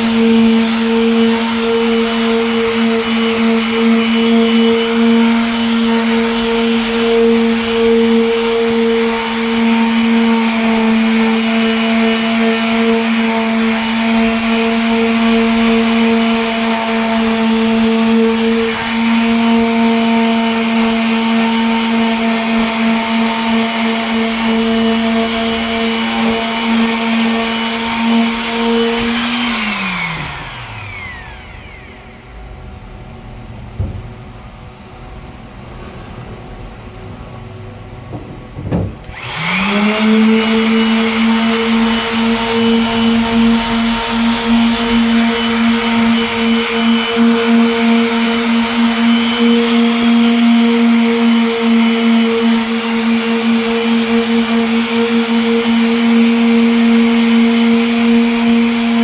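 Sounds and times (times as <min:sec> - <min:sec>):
electric sander motor: 0:00.0 - 0:34.2, 0:38.1 - 0:59.0
light knocks: 0:33.8 - 0:34.4, 0:38.1 - 0:39.2.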